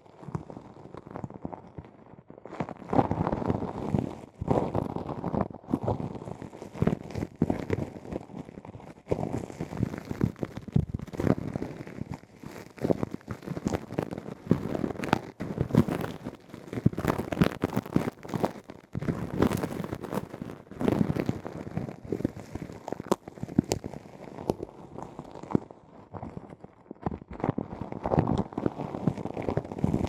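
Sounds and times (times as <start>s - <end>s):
crackling and scratching: 9.1s - 30.0s.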